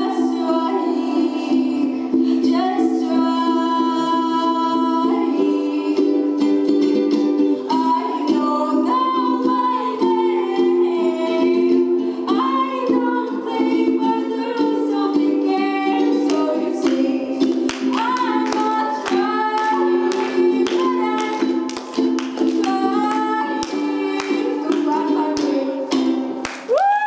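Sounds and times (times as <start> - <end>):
girl singing: 0.0 - 26.8.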